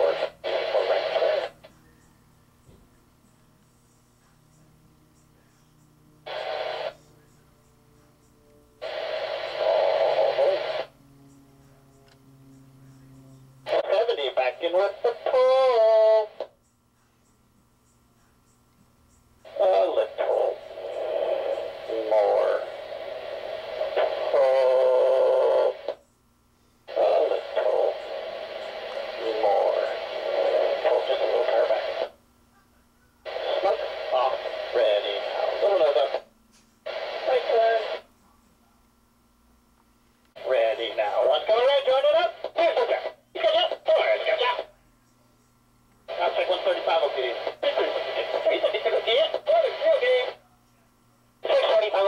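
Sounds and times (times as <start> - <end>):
radio transmission hiss bursts: 0.0 - 2.2, 5.1 - 8.1, 8.8 - 11.0, 13.6 - 16.6, 19.2 - 26.0, 26.7 - 32.2, 33.2 - 38.1, 40.3 - 44.7, 46.1 - 50.4, 51.4 - 52.0.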